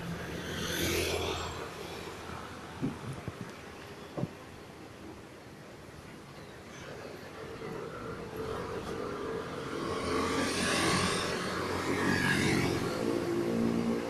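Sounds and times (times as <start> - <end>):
vehicle passing close by: 8.2 - 14.0.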